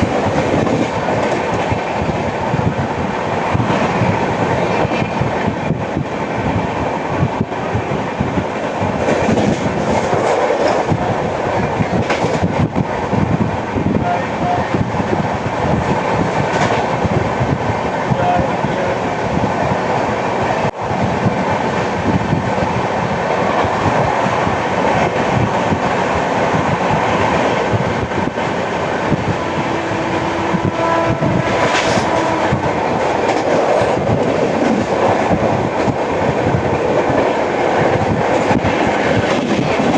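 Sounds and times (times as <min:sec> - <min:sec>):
train wheels clacking over rail joints: 0:00.0 - 0:02.2, 0:08.4 - 0:12.8, 0:23.4 - 0:39.9.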